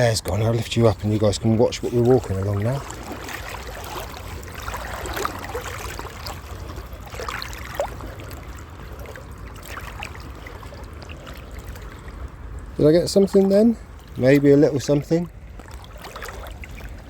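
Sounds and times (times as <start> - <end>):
river water sloshing: 0.0 - 17.0
small splashes: 0.4 - 17.0.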